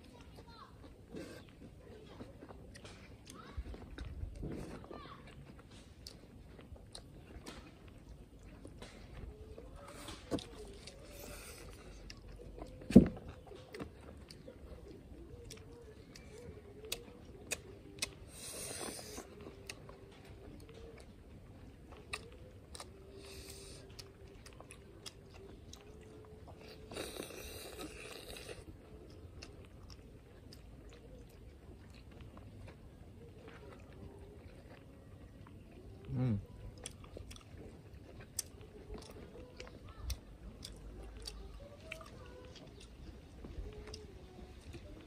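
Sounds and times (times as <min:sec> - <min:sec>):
chewing and biting: 0:00.0 - 0:45.0
wet mouth clicks: 0:15.4 - 0:19.8.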